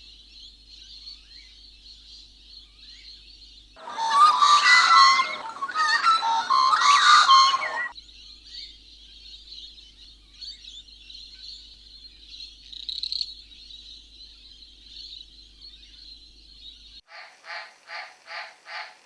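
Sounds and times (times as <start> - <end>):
high-pitched chorus of calls: 3.8 - 7.9
loud whistling chirping calls: 3.8 - 7.9.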